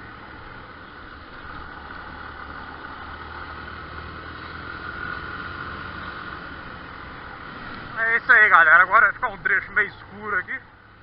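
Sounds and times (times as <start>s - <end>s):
motorcycle engine running: 0.0s - 8.0s
road noise: 0.0s - 11.0s.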